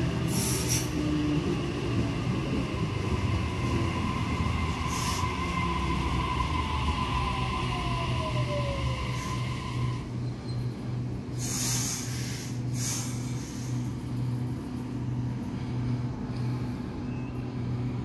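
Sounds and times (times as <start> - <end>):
electric train passing: 0.0 - 18.0
short hissing bursts: 11.4 - 13.7.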